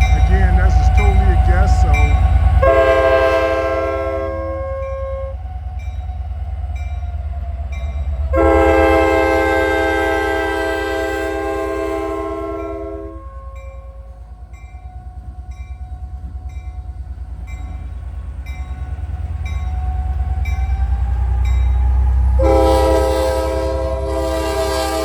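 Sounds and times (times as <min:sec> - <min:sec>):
locomotive horn: 0:00.0 - 0:05.4, 0:08.3 - 0:13.9, 0:22.4 - 0:25.0
locomotive engine rumble: 0:00.0 - 0:25.0.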